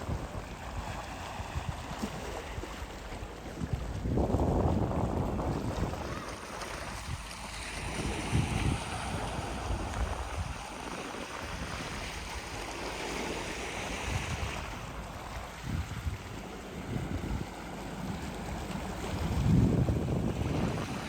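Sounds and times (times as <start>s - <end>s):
sea waves washing ashore: 0.0s - 21.0s
wind rumbling on microphone: 0.0s - 21.0s.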